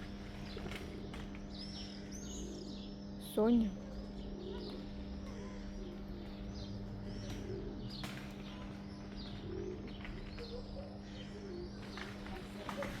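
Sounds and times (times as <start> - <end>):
small birds chirping: 0.0 - 13.0
steady low hum: 0.0 - 13.0
pigeon-like cooing: 3.7 - 13.0.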